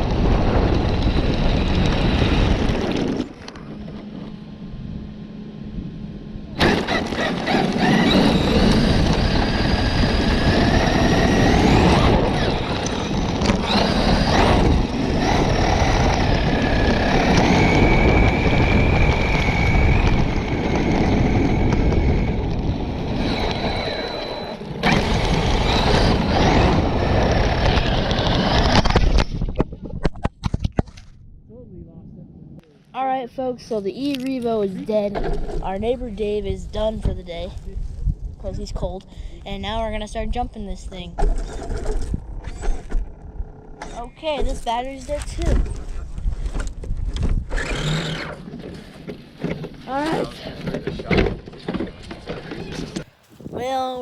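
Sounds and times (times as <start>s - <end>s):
rc car wheels rushing: 0.0s - 4.1s, 6.6s - 30.1s, 35.0s - 36.1s, 39.8s - 53.4s
electric motor whine: 0.0s - 29.3s, 46.6s - 49.4s.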